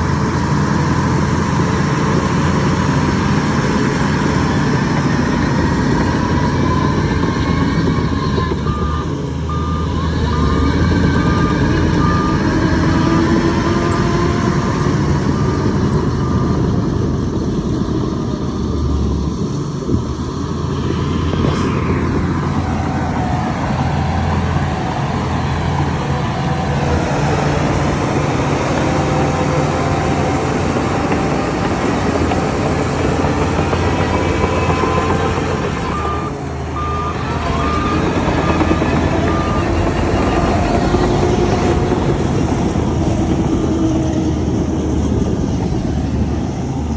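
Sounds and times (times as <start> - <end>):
diesel machinery engine running: 0.0 - 46.9
reversing alarm beeping: 6.2 - 13.2, 33.0 - 41.4.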